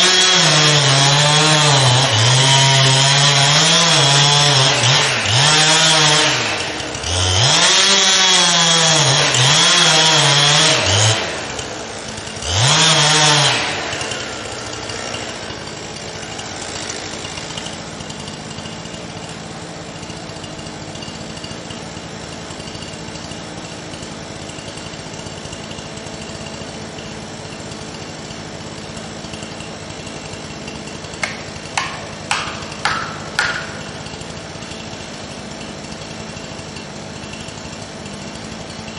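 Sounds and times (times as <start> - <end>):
chainsaw cutting wood: 0.0 - 38.9
sharp knocks: 31.2 - 34.3.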